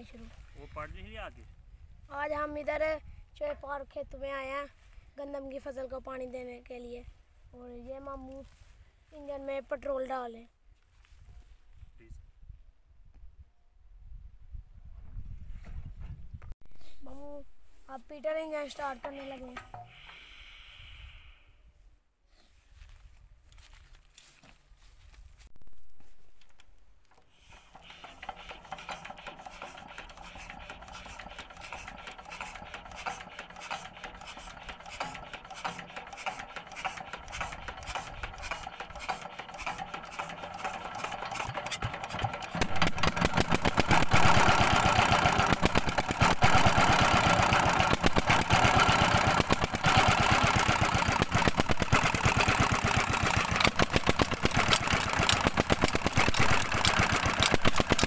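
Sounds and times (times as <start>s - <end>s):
diesel engine turning over and running: 27.0s - 58.0s.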